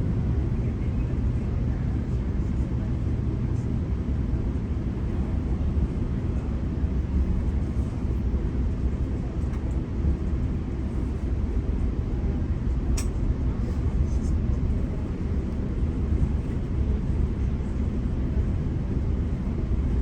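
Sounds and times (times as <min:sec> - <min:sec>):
short sharp click: 0:13.0 - 0:13.2.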